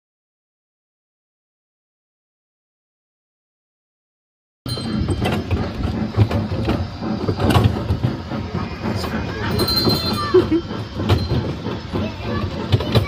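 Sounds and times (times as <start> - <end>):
sharp rail clicks: 4.7 - 13.0
train rumbling on rails: 4.7 - 13.0.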